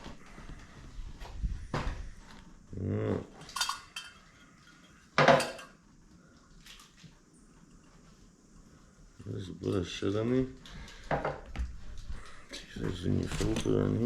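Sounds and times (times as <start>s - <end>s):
metal parts clinking on a tray: 3.5s - 4.2s.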